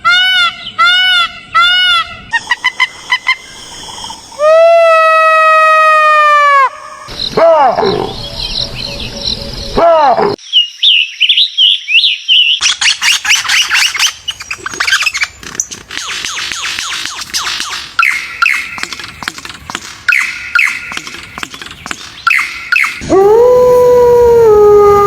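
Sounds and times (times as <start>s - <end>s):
birds chirping and squawking: 2.4s - 4.4s, 10.4s - 23.0s
short clear bird calls: 16.0s - 19.0s, 20.0s - 23.0s.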